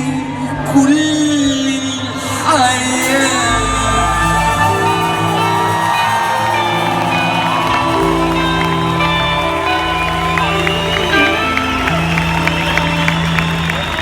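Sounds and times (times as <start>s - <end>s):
crowd cheering and whooping: 0.0s - 14.0s
live band playing: 3.0s - 14.0s.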